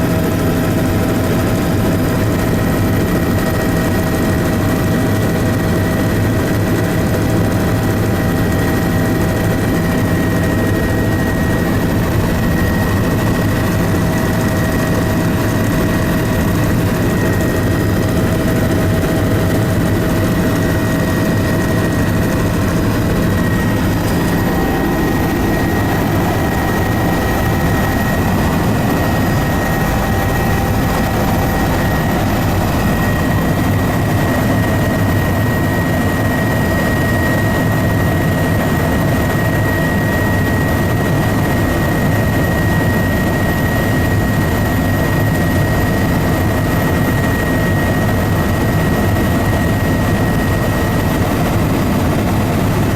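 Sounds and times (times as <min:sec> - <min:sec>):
aircraft engine drone: 0:00.0 - 0:52.9
thin high whine: 0:16.9 - 0:34.9.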